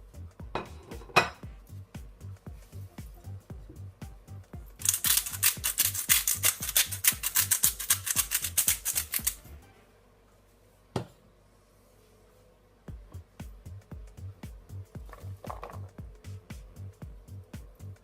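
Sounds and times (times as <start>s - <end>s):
background music with beat: 0.0s - 9.7s, 12.9s - 18.0s
kitchen utensils clicking: 4.8s - 9.4s.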